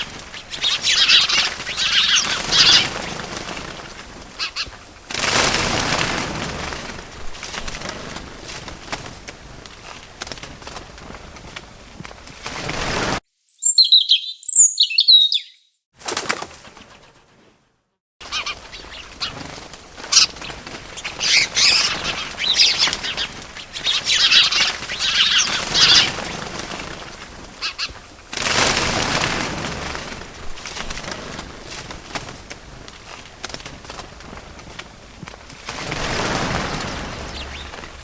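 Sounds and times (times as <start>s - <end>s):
bird calls: 0.0s - 4.9s, 13.3s - 15.8s, 18.2s - 28.0s, 36.0s - 38.0s
wings flapping: 0.0s - 13.2s, 16.0s - 17.6s, 18.2s - 38.0s
sharp high bird chirps: 13.3s - 15.8s.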